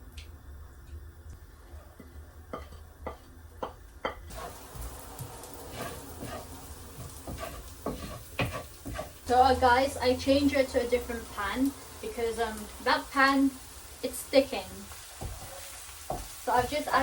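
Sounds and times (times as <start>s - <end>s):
onions sizzling in hot oil: 2.5s - 17.0s
utensil knocking against pan: 7.0s - 9.2s.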